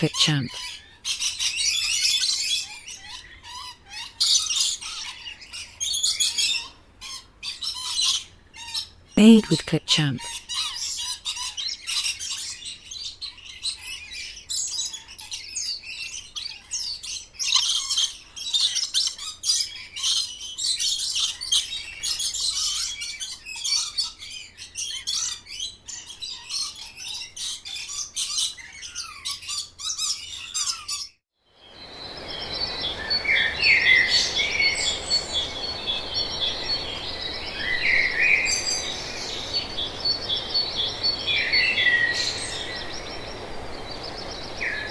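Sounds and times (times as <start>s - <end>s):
small birds chirping: 0.0s - 44.9s
background hiss: 31.6s - 44.9s
high bird trill: 31.7s - 44.9s.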